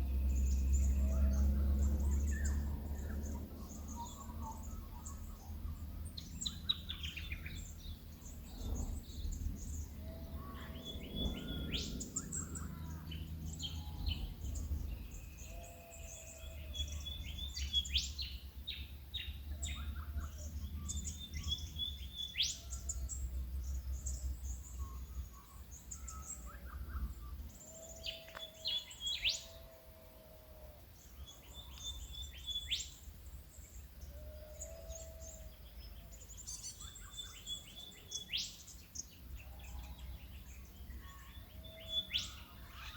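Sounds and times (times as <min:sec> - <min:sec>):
low rumble: 0:00.0 - 0:17.3
birds chirping and trilling: 0:00.0 - 0:42.9.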